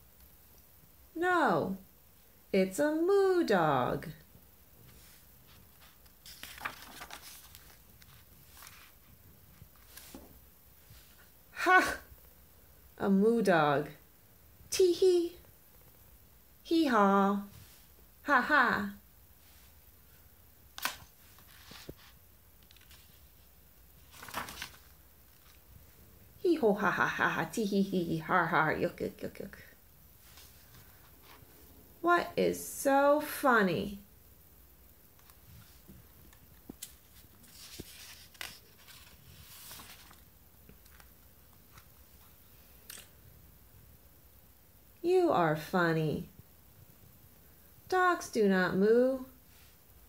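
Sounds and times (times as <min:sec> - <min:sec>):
soft rustling: 0:04.7 - 0:11.4, 0:20.9 - 0:26.2, 0:30.1 - 0:31.8, 0:35.1 - 0:43.2.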